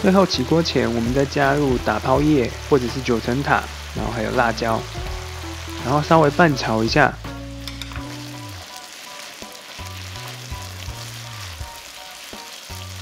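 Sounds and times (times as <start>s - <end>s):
meat sizzling in a pan: 0.0s - 13.0s
soft background music: 0.0s - 13.0s.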